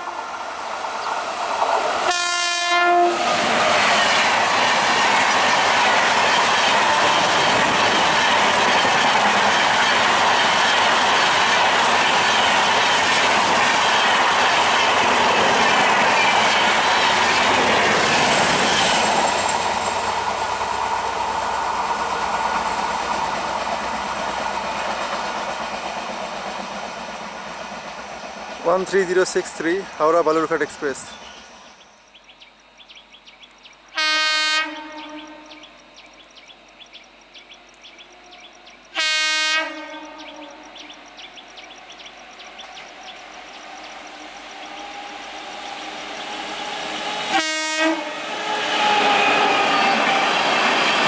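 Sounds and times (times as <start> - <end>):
locomotive horn blast: 2.0 - 3.3, 34.0 - 35.6, 39.0 - 40.7, 46.6 - 50.3
train wheels clattering: 3.4 - 30.7.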